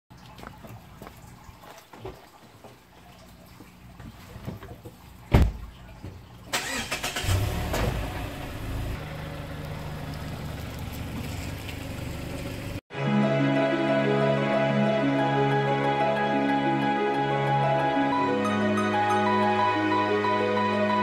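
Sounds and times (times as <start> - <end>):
car engine starting and idling: 6.5 - 12.8
car door shutting: 7.6 - 8.1.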